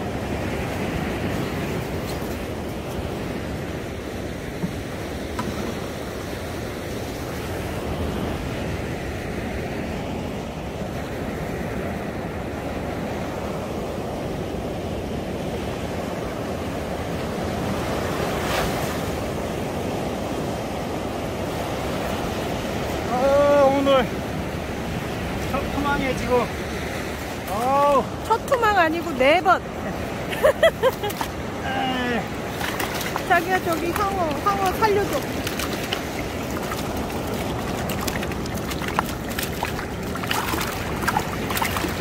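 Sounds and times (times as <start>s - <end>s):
surf washing onto beach: 0.0s - 42.0s
wind buffeting microphone: 19.2s - 42.0s.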